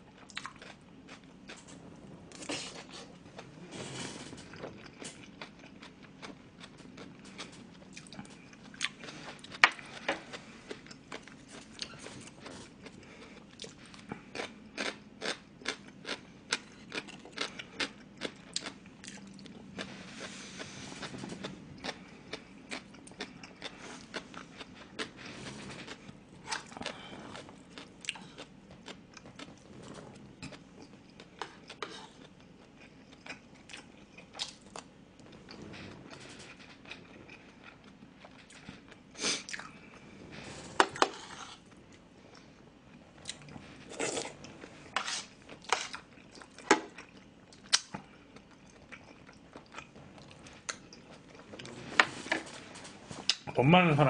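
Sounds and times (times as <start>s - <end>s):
man chewing with wet smacks: 0.1s - 1.6s, 4.6s - 19.9s, 20.6s - 25.2s, 45.5s - 51.8s.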